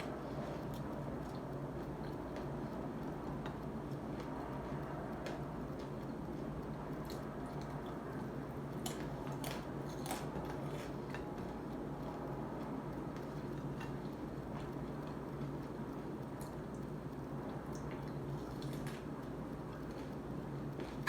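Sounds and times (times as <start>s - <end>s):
person chewing crunchy food: 0.0s - 21.0s
steady low hum: 0.0s - 21.0s.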